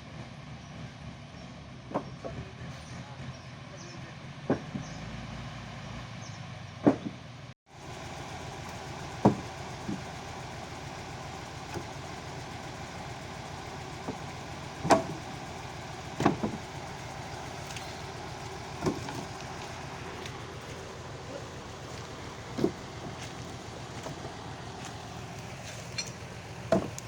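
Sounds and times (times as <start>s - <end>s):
army truck engine running: 0.0s - 27.0s
sharp knocks: 9.2s - 9.4s, 26.0s - 27.0s.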